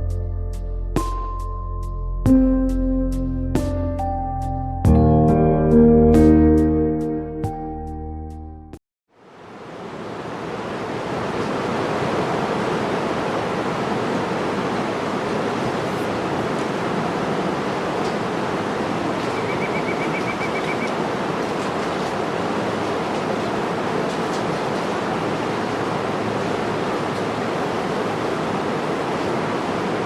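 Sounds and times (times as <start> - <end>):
water rushing: 9.2 - 30.0.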